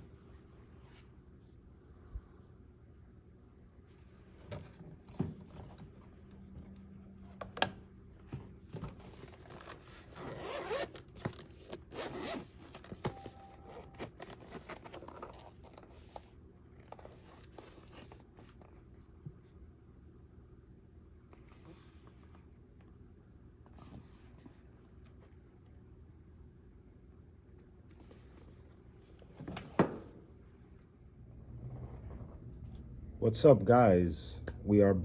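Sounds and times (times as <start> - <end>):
zipper pulled open: 10.0 - 11.1, 11.7 - 12.9.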